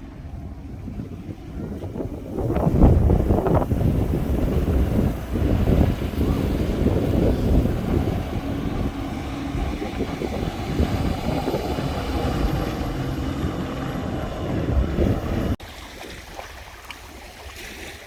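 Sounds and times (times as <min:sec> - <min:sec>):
wind buffeting microphone: 0:00.0 - 0:17.4.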